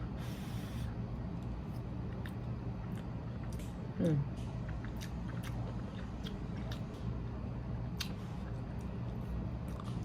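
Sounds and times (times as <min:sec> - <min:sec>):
steady low hum: 0:00.0 - 0:10.0
chewing smacks: 0:04.5 - 0:07.0, 0:08.0 - 0:10.0.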